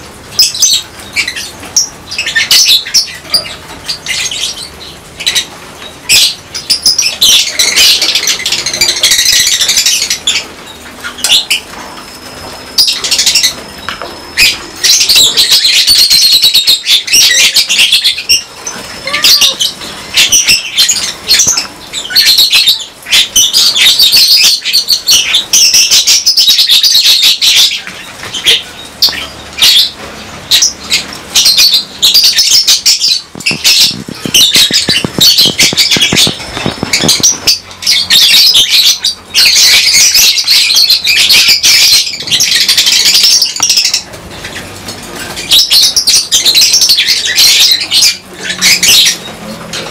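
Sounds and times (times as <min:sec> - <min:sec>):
lovebirds chattering shrilly: 0:00.0 - 0:49.9
wing flutters: 0:32.8 - 0:38.1.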